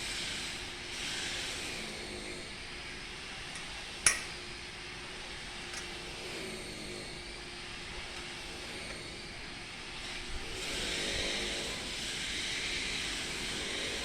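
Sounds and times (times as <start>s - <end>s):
steady background hum: 0.0s - 14.0s
sharp ringing clink: 3.6s - 4.4s.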